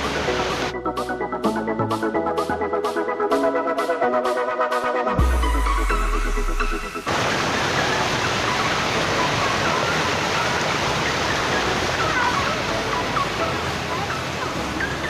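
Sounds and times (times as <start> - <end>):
waterfall roaring: 0.0 - 0.7, 7.1 - 15.0
background music: 0.0 - 15.0.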